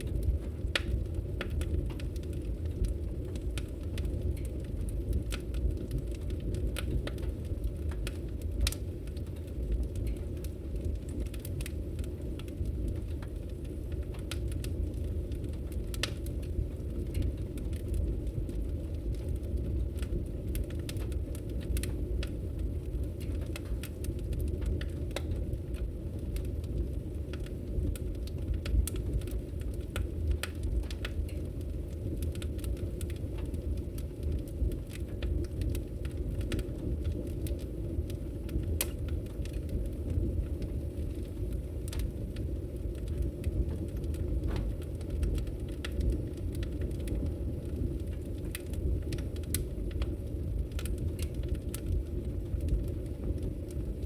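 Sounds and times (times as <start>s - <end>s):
logs crackling in fireplace: 0.0s - 54.0s
low fire rumble: 0.0s - 54.0s
sharp pops of burning wood: 43.6s - 47.1s.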